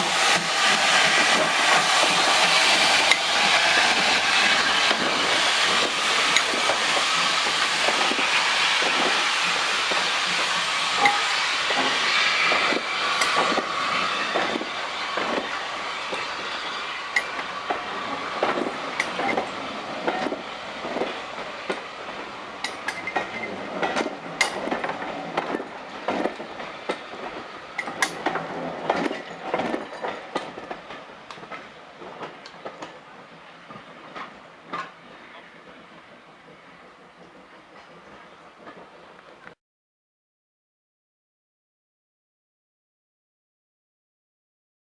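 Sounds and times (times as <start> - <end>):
train wheels clicking over rail joints: 0.0 - 16.5, 17.1 - 39.5
hiss: 0.0 - 23.2.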